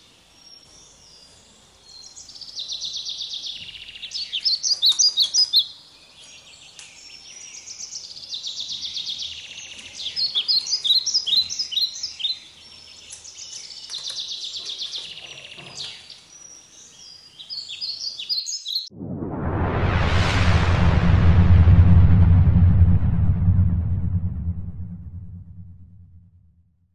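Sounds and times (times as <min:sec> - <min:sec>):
songbirds chirping and trilling: 0:00.0 - 0:18.9.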